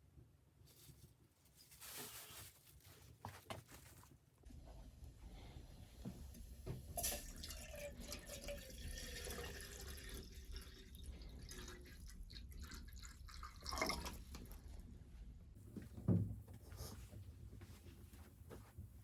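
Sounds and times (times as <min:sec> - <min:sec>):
water trickling and dripping: 0:06.9 - 0:14.5.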